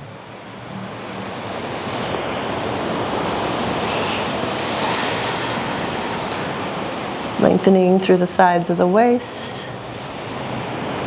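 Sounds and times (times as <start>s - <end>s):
ocean surf washing on beach: 0.0s - 11.0s
wind on microphone: 0.8s - 8.3s.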